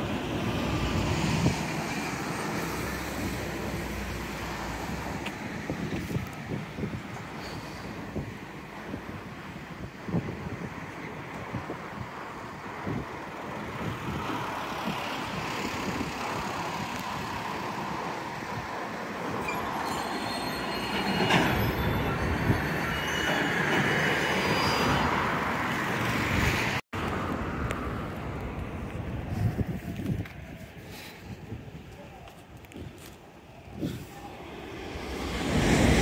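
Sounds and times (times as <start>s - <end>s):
freight train rumble and clatter: 16.2s - 26.8s, 33.8s - 36.0s
high-pitched wheel squeal: 19.4s - 25.4s.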